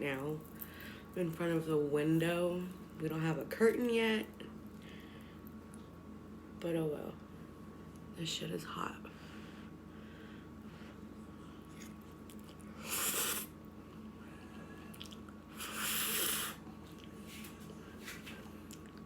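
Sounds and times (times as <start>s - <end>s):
faint chewing: 11.6s - 13.3s, 13.9s - 17.5s, 18.1s - 19.0s.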